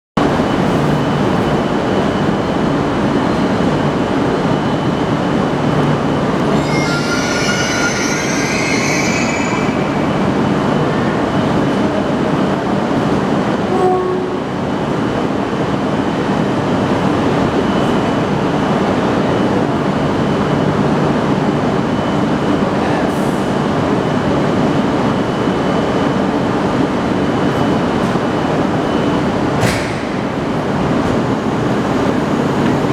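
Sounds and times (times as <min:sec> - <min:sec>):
loud rail noise: 0:00.1 - 0:32.9
brief squeal: 0:06.5 - 0:10.2.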